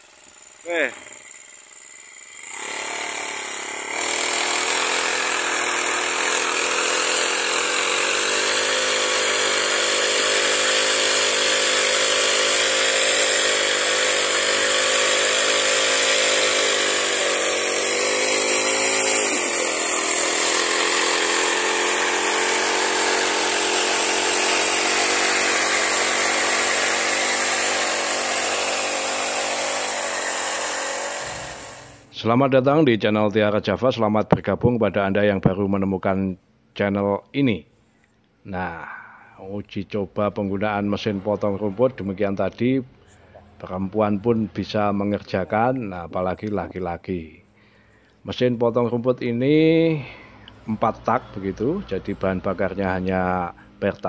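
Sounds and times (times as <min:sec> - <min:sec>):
small engine running at high speed: 0:00.0 - 0:32.1.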